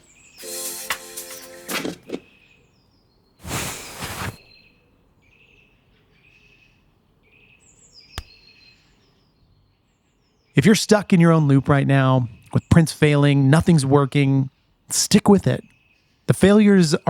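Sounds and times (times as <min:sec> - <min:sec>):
faint birds chirping: 0:00.0 - 0:00.6, 0:02.0 - 0:17.0
burst of rushing noise: 0:03.4 - 0:04.4
sharp click: 0:08.2 - 0:08.4.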